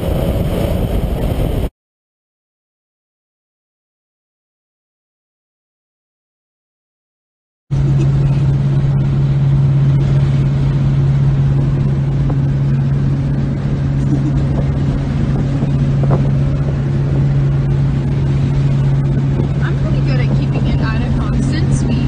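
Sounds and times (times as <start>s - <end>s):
road noise: 0.0s - 1.7s, 7.7s - 22.0s
car engine droning: 7.7s - 22.0s.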